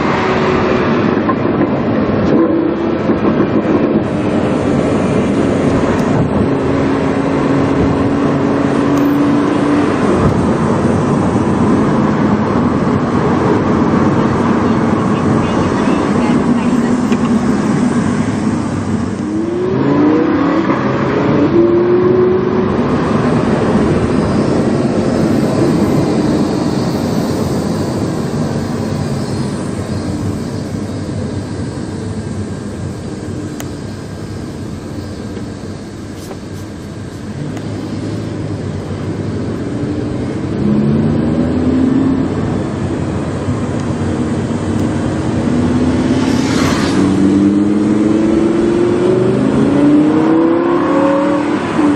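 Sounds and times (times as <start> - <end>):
car engine accelerating: 0.0 - 51.9.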